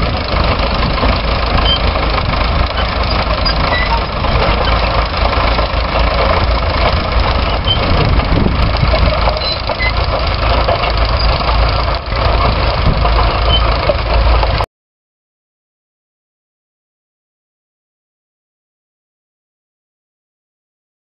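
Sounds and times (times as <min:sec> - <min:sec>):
tractor engine running: 0:00.0 - 0:14.7.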